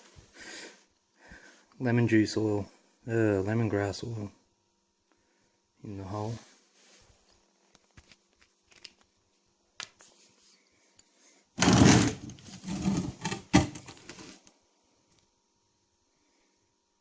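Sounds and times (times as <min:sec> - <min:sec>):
rustling scraping clatter: 0:11.6 - 0:14.4.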